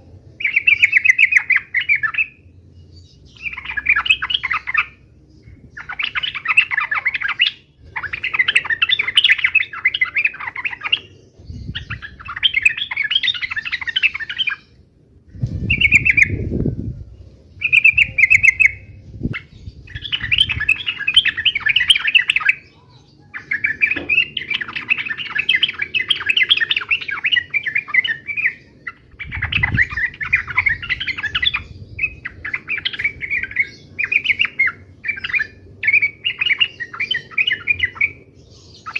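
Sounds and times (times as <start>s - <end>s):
birds chattering calls: 0.0s - 38.9s
low rumble: 14.9s - 20.7s.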